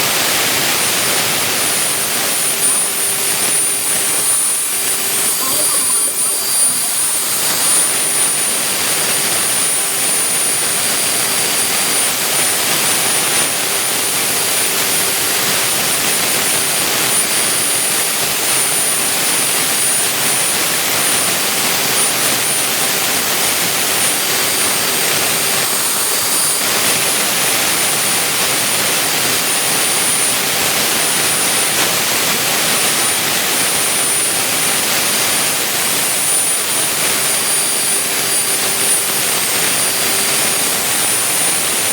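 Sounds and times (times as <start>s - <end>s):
milling machine running: 0.9s - 13.9s.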